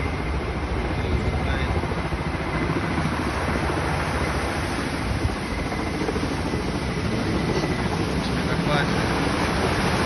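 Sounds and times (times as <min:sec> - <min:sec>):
wind buffeting microphone: 0:00.0 - 0:10.0
water rushing: 0:06.2 - 0:10.0.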